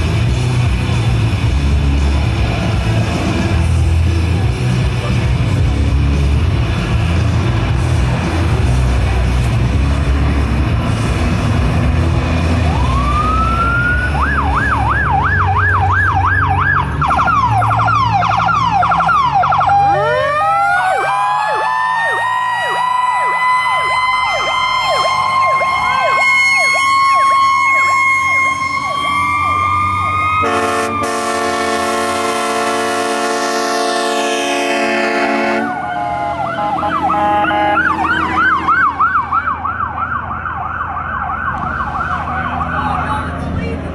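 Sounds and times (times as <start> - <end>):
low rumble: 0.0 - 19.6
electronic siren wailing and yelping: 12.6 - 31.5, 35.6 - 43.1
mechanical siren wail: 12.6 - 43.1
air horn: 24.9 - 38.9.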